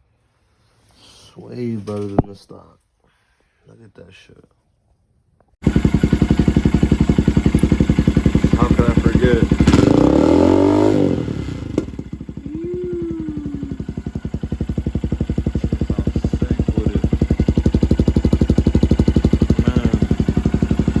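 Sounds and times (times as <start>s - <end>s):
motorcycle engine idling: 5.6s - 21.0s.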